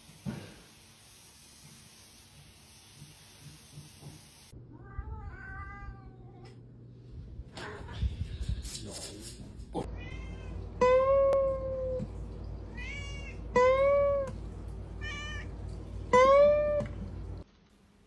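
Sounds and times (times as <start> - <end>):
cat meowing: 4.7 - 6.6, 9.9 - 12.0, 12.7 - 14.3.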